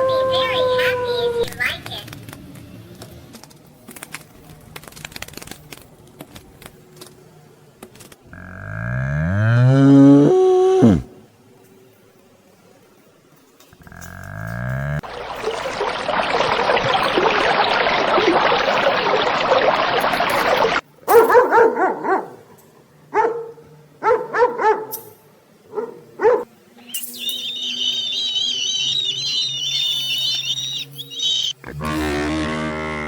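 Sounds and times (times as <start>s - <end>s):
dense noisy animal sound: 0.0s - 2.0s, 8.2s - 11.3s, 13.7s - 20.8s, 27.4s - 33.0s
high warbling call: 10.5s - 11.1s, 15.0s - 20.8s
short barks: 21.1s - 22.4s.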